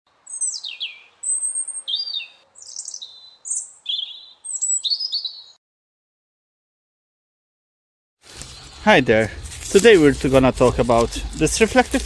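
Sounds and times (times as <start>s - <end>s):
songbird singing: 0.1s - 5.6s.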